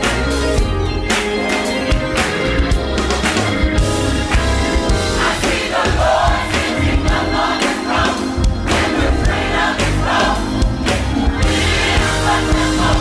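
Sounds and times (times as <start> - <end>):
band with bass and drums: 0.0 - 13.0
choir singing: 4.9 - 13.0.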